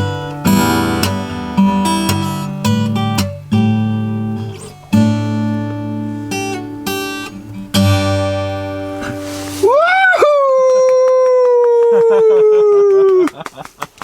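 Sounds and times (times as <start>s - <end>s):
acoustic guitar chords strummed: 0.0s - 9.6s.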